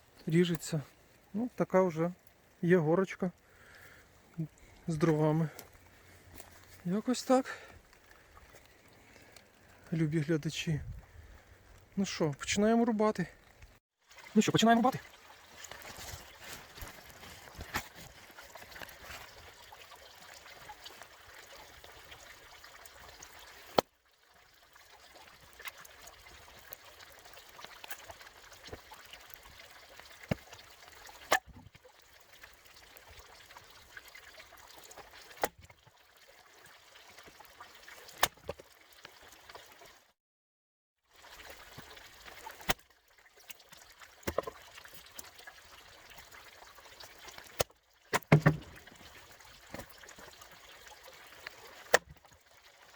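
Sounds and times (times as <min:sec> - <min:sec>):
maul striking logs: 0:48.1 - 0:49.0.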